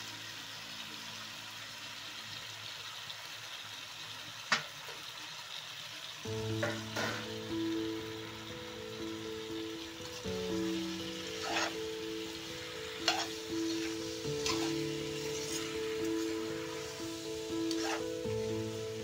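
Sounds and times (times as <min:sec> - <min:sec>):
food sizzling in a pan: 0:00.0 - 0:19.0
background music: 0:06.3 - 0:19.0.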